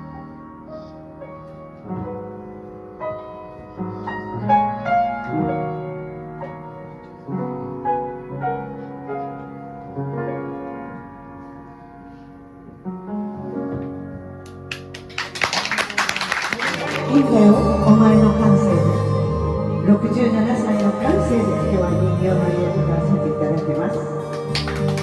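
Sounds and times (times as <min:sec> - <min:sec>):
slow piano melody: 0:00.0 - 0:25.0.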